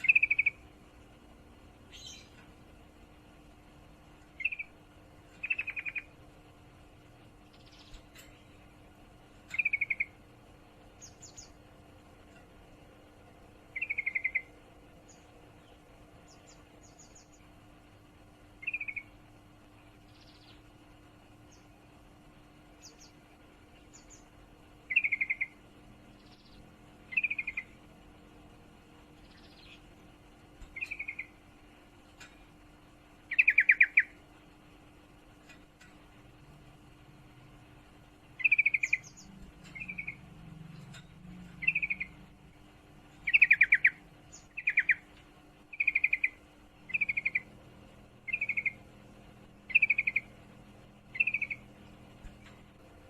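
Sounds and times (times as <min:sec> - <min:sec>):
faint high bird chirps: 0:00.0 - 0:00.7, 0:01.8 - 0:02.5, 0:04.3 - 0:06.2, 0:07.4 - 0:10.3, 0:10.9 - 0:11.6, 0:13.7 - 0:17.5, 0:18.5 - 0:21.9, 0:22.8 - 0:27.9, 0:29.0 - 0:30.0, 0:30.6 - 0:32.6, 0:33.3 - 0:34.3, 0:38.2 - 0:42.4, 0:43.1 - 0:53.0.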